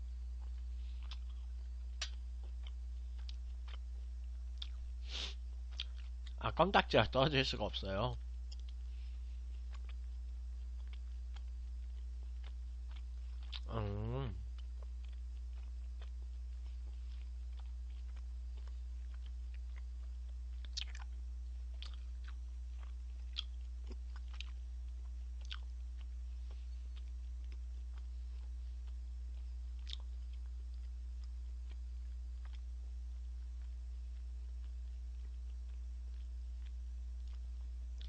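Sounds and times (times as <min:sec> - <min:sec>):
low hum: 0:00.0 - 0:38.0
person chewing with mouth clicks: 0:00.4 - 0:06.4, 0:08.2 - 0:38.0.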